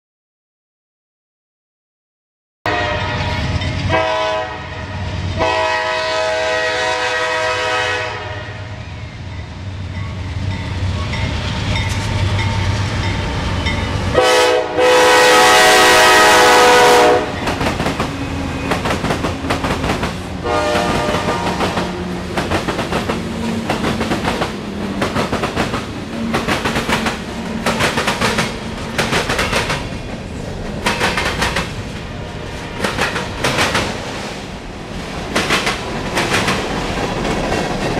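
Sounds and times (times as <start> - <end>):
train air horn blasts: 2.7 - 9.1, 14.1 - 17.4, 20.4 - 22.1, 32.1 - 32.9
train wheels clacking over rail joints: 17.4 - 32.0, 32.6 - 34.2, 35.2 - 37.9.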